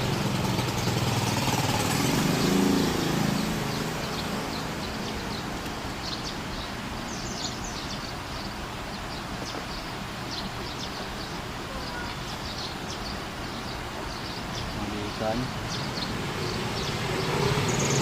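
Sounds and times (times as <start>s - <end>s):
vehicle engine passing by: 0.0s - 6.4s, 14.7s - 18.0s
high bird chirps: 0.0s - 18.0s.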